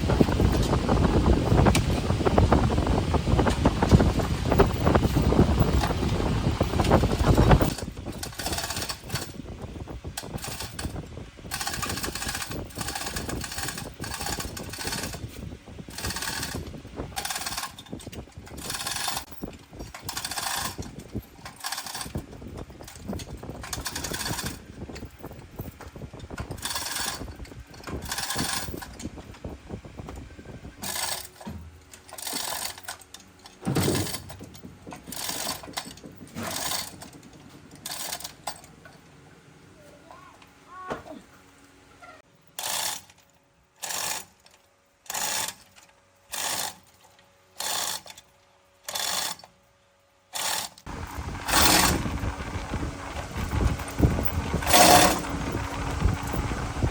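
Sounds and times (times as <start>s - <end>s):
power tool bursts on metal: 46.3s - 46.8s, 50.3s - 50.8s, 51.4s - 52.0s, 54.6s - 55.3s.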